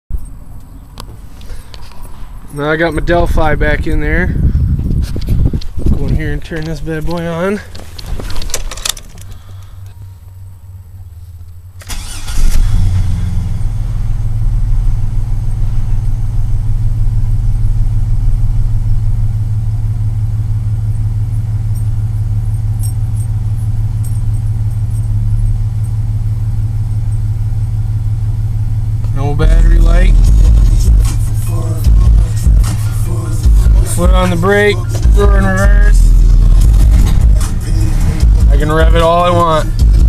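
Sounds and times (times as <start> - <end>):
truck engine idling: 0.1 - 40.0
truck starter cranking: 5.2 - 10.0, 11.7 - 13.9, 29.6 - 40.0.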